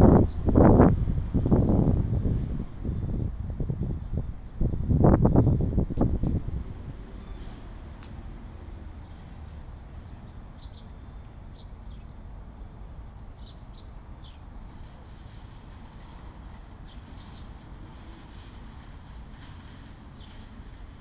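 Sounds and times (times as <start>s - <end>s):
low rumble of distant traffic: 0.0s - 21.0s
small birds chirping: 4.8s - 12.4s, 13.0s - 14.8s, 16.0s - 17.6s, 19.9s - 20.8s.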